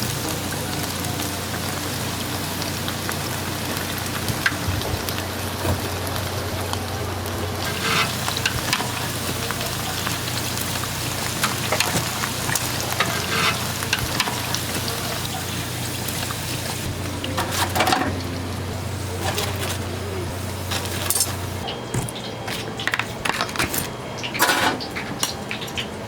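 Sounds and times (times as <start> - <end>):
food sizzling in hot oil: 0.0 - 26.0
steady low hum: 4.9 - 25.6.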